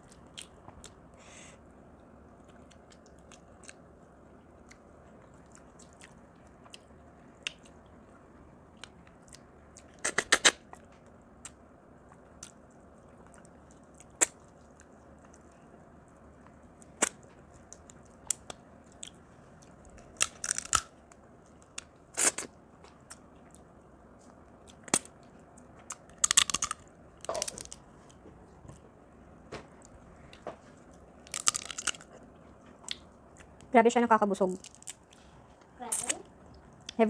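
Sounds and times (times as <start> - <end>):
crab shell cracking: 20.2 - 20.9, 26.2 - 27.8, 31.3 - 32.1.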